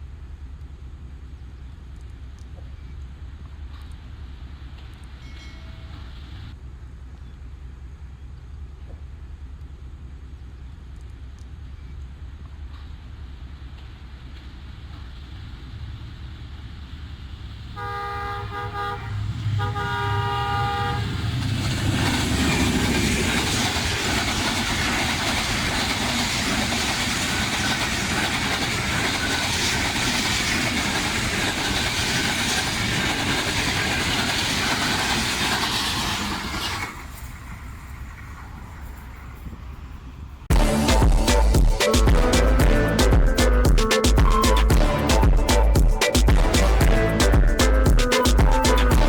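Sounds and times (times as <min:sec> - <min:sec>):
train rushing past: 0:12.6 - 0:49.0
locomotive horn blasts: 0:17.8 - 0:21.3, 0:44.7 - 0:47.9
music: 0:40.5 - 0:49.0.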